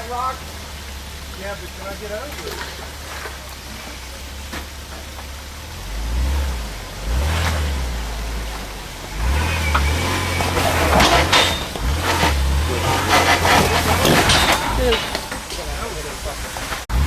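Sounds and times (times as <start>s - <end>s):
vehicle scraping and knocking rock: 0.0s - 17.0s
engine revving: 5.6s - 17.0s.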